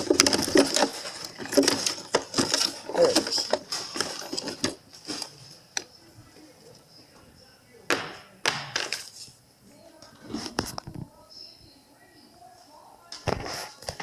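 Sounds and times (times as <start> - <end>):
food packages clattering on shelves: 0.0 - 5.6.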